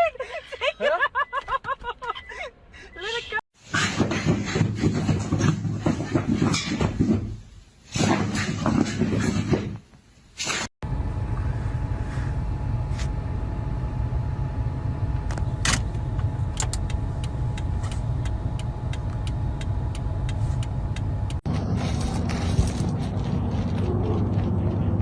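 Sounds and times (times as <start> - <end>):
moving car rumble: 10.8 - 25.0.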